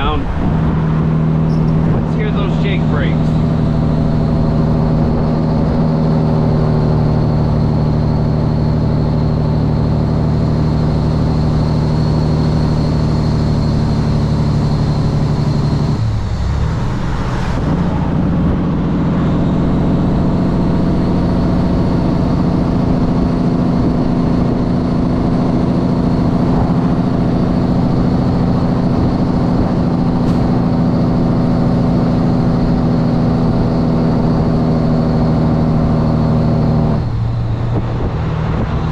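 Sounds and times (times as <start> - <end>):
truck engine brake droning: 26.1 - 36.0.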